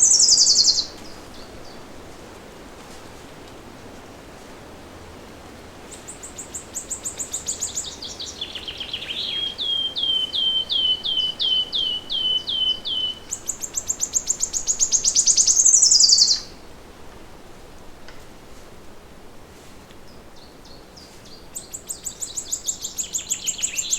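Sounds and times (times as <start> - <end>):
songbird singing: 0.0 - 1.9, 5.9 - 16.6, 20.1 - 23.9
faint steady hiss: 0.0 - 23.9.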